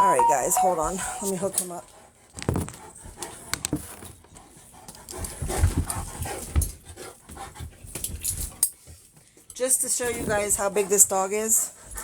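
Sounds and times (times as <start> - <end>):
dog panting: 2.0 - 7.9, 10.0 - 12.0.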